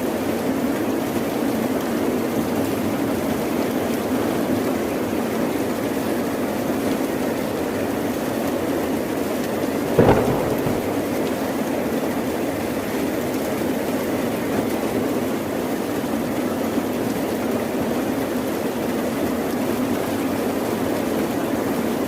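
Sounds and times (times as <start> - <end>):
sudden thump: 10.0 - 11.6.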